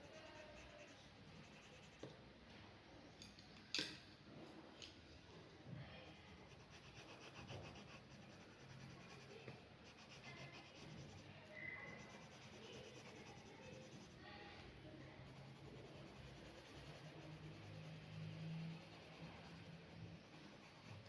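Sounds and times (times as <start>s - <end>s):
pen scratching on paper: 0.0s - 2.0s, 6.2s - 14.2s, 15.0s - 21.0s.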